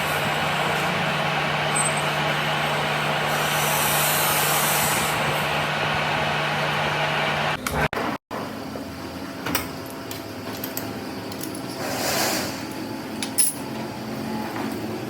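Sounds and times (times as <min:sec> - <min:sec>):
noisy scrape or rustle: 0:11.8 - 0:12.6.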